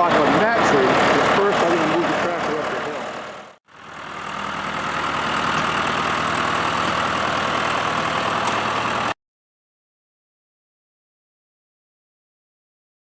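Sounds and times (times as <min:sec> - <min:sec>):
tractor diesel engine running: 0:00.0 - 0:09.2.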